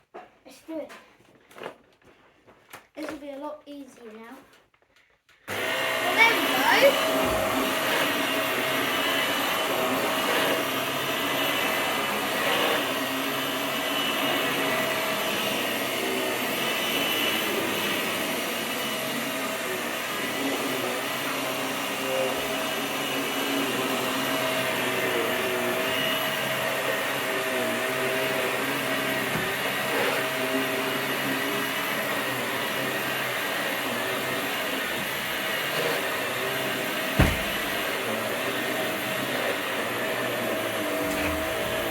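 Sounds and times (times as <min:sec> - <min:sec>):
upright vacuum cleaner running: 0:05.5 - 0:41.9
sharp knock: 0:37.2 - 0:37.6.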